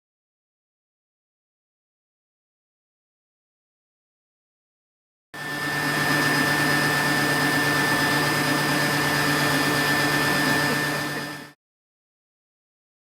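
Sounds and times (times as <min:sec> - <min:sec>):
hair dryer blowing: 0:05.4 - 0:11.6.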